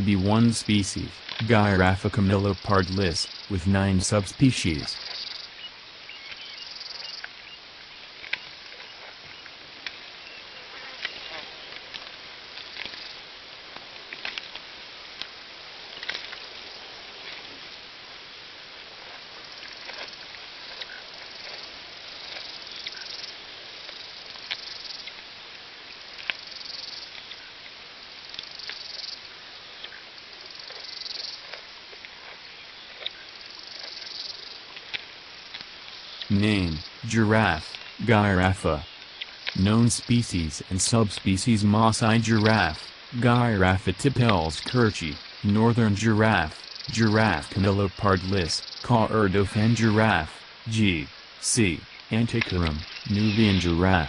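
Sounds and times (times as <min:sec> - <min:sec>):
insects buzzing: 0:00.0 - 0:54.0
steady hiss: 0:00.0 - 0:54.0.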